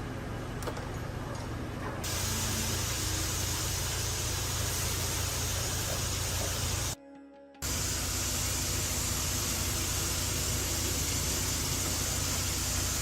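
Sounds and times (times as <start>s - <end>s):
low machine hum: 0.0s - 7.0s, 7.6s - 13.0s
pressurised spray hiss: 2.0s - 7.0s, 7.6s - 13.0s.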